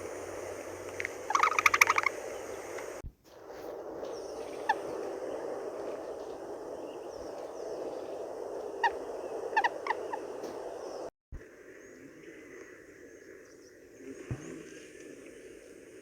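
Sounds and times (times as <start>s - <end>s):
steady background hiss: 0.0s - 16.0s
short bird calls: 1.3s - 3.0s.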